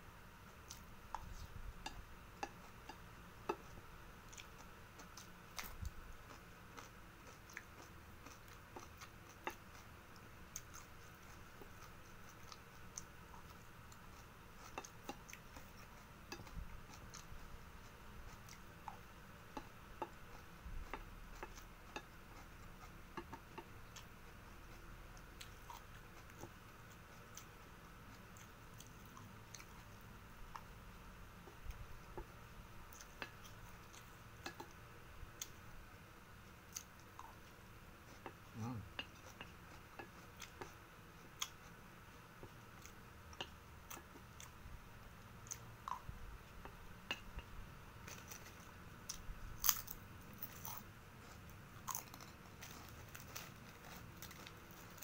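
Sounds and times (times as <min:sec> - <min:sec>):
faint steady hum: 0:00.0 - 0:55.0
quiet chewing with mouth clicks: 0:00.4 - 0:55.0.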